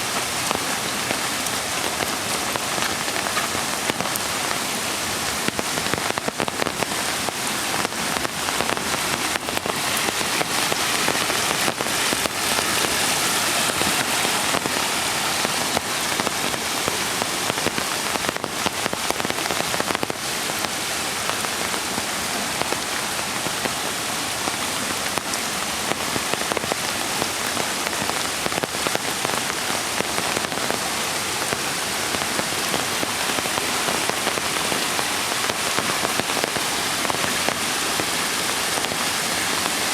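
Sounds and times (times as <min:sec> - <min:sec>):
raindrops ticking: 0:00.0 - 0:21.8
rain falling: 0:00.0 - 0:39.9.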